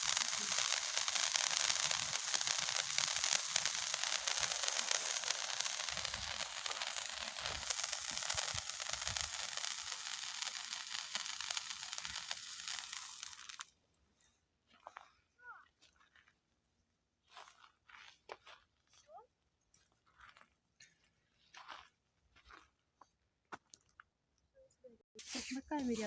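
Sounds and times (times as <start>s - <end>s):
firework hissing and crackling: 0.0s - 13.7s, 25.2s - 26.0s.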